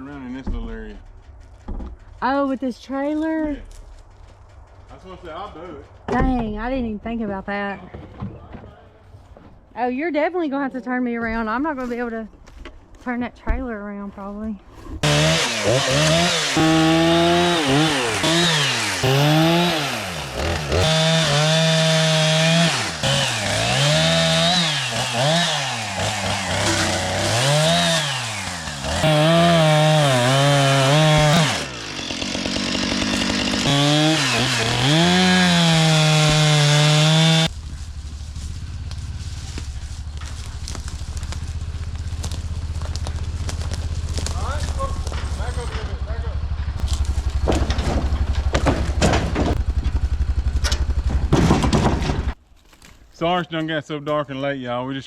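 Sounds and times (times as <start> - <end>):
chainsaw cutting wood: 14.8 - 45.4, 46.8 - 52.4
low steady rumble: 37.5 - 52.4.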